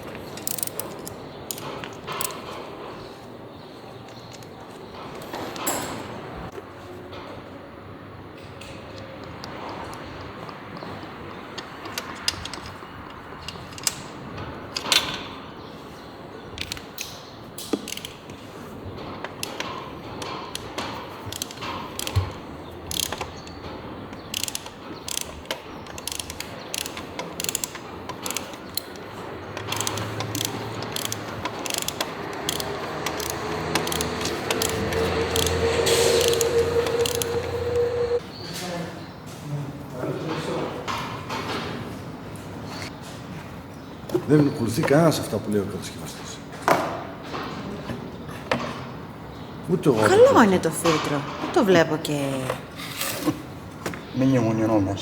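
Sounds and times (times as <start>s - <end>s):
metallic clicks of hand tools: 0.1s - 2.5s, 16.6s - 18.4s, 19.2s - 37.9s.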